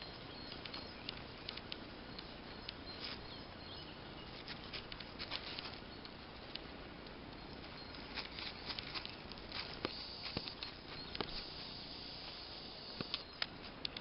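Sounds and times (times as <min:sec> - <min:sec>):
light ticks and rustles: 0:00.0 - 0:14.0
steady background hiss: 0:00.0 - 0:14.0.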